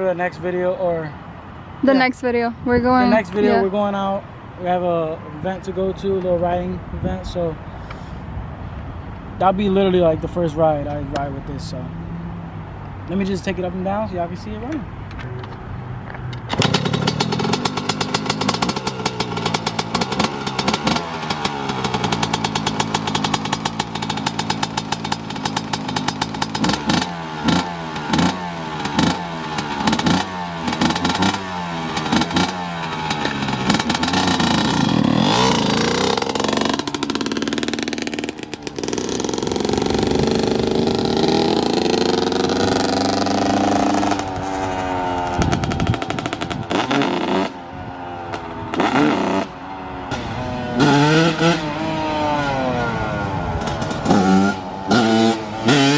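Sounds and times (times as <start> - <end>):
dirt bike engine revving: 16.5 - 47.6, 48.3 - 55.9.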